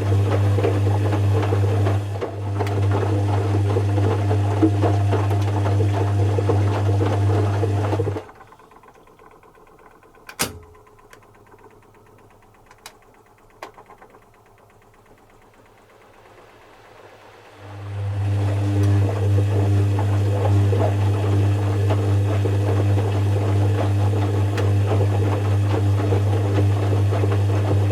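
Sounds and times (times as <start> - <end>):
washing machine motor humming: 0.0 - 27.9
washing machine clicks: 8.2 - 16.2.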